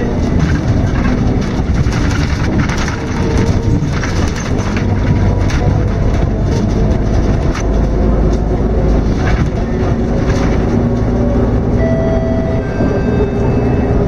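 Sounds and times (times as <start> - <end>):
interior rattles and clicks: 0.0 - 11.9
bus engine and road rumble: 0.0 - 14.0
brief steady whine: 11.8 - 14.0.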